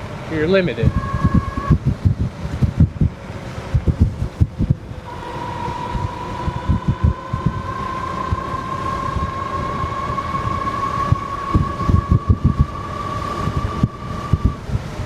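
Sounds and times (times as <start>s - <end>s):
wind buffeting microphone: 0.0s - 15.0s
electric motor whining: 5.0s - 14.6s.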